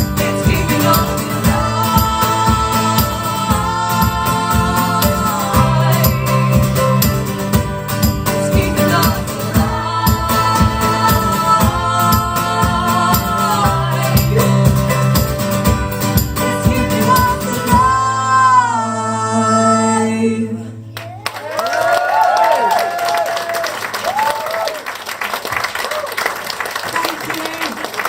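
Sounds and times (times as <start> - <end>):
live music with singing: 0.0 - 20.9.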